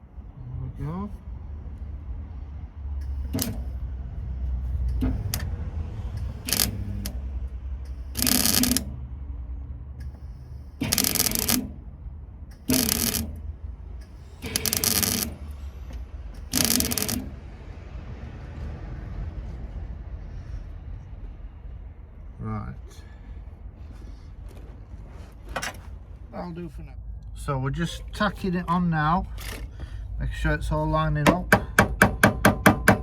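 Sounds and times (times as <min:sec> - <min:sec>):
welder tack welding: 0:03.0 - 0:03.7, 0:06.2 - 0:07.2, 0:07.8 - 0:09.0, 0:10.0 - 0:11.8, 0:12.5 - 0:13.4, 0:14.0 - 0:15.5, 0:16.4 - 0:17.4
short clicks: 0:06.1 - 0:07.2, 0:07.9 - 0:09.0, 0:10.8 - 0:11.7, 0:12.5 - 0:13.4, 0:14.0 - 0:15.4, 0:16.4 - 0:17.3.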